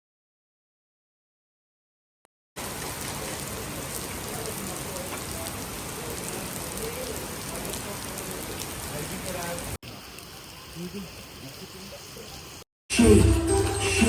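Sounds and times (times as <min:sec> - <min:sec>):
steady rain falling: 0:02.6 - 0:12.6.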